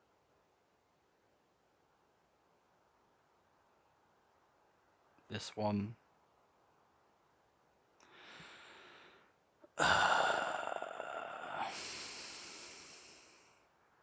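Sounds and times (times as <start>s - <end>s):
person breathing in softly: 8.0s - 13.6s.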